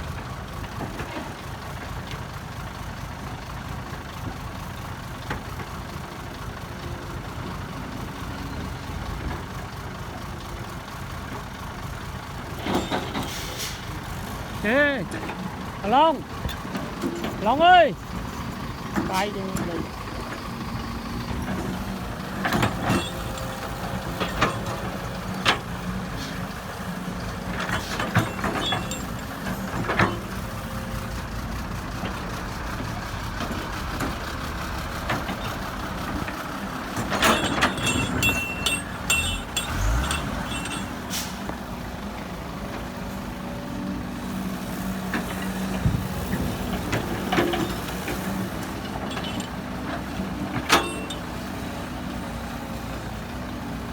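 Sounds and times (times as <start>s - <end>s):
diesel machinery running: 0.0s - 53.9s
metal clanks and knocks: 12.6s - 13.3s, 21.2s - 26.4s, 27.3s - 30.8s, 35.1s - 41.6s, 45.2s - 51.5s.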